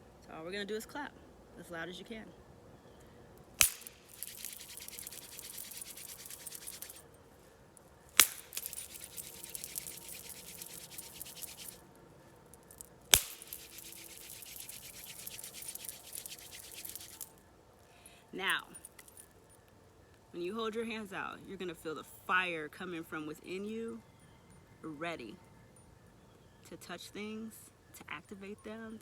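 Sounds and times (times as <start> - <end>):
palms rubbing together: 3.6 - 7.0, 8.2 - 11.8, 13.2 - 17.3.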